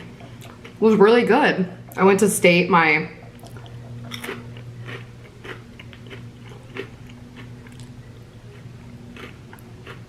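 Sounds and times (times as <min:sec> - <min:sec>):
chewing crunchy chips: 0:00.0 - 0:00.9, 0:03.2 - 0:10.0
steady low hum: 0:00.0 - 0:10.0.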